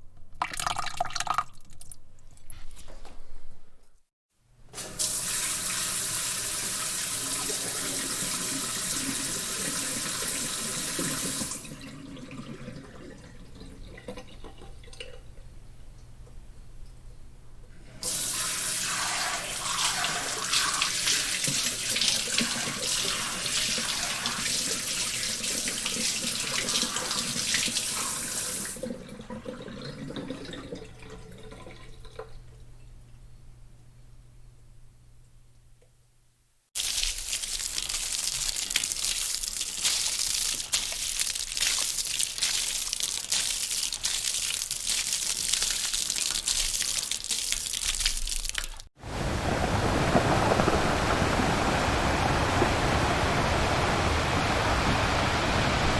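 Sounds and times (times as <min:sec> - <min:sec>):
water trickling and dripping: 0:36.8 - 0:55.9.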